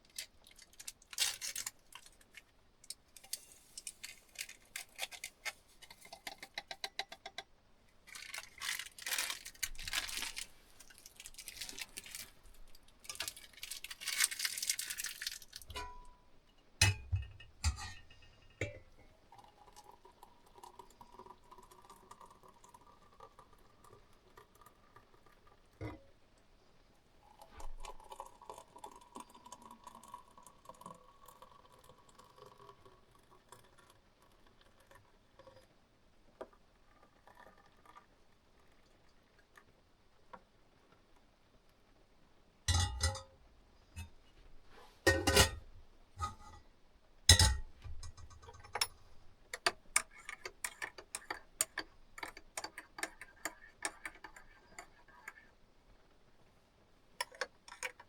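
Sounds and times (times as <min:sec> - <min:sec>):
dishes and glassware clinking: 0:15.7 - 0:19.0, 0:42.7 - 0:43.3, 0:45.1 - 0:46.6, 0:47.3 - 0:52.8.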